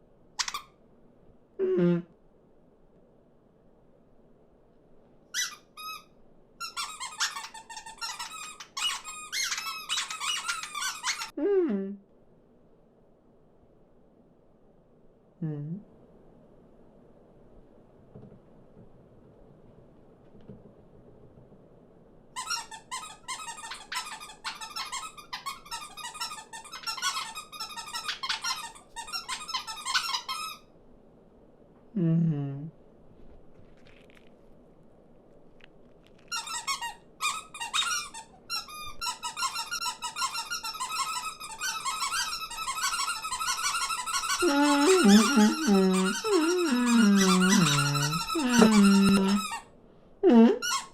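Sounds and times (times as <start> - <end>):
cartoon birds chattering and chirping: 44.4 - 49.4.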